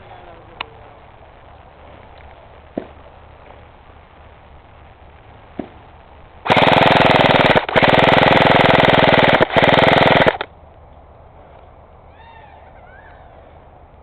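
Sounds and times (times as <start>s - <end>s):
airsoft rifle firing full-auto: 6.4s - 10.5s.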